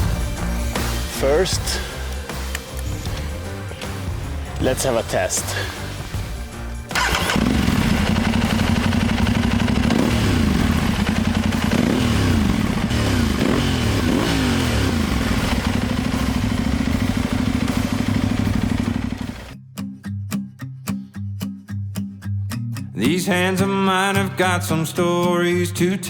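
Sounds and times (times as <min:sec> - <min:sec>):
motorcycle engine idling and revving: 0:00.0 - 0:19.6.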